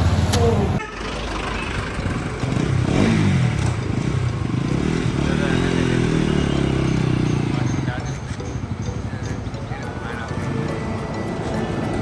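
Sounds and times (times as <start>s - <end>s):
motorcycle engine accelerating: 0.0s - 9.6s.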